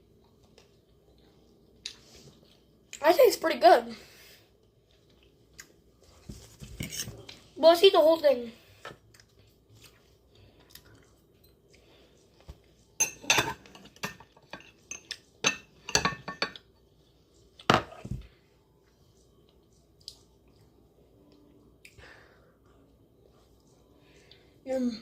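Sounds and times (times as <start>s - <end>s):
spoon clinking and scraping bowl: 13.0s - 16.6s.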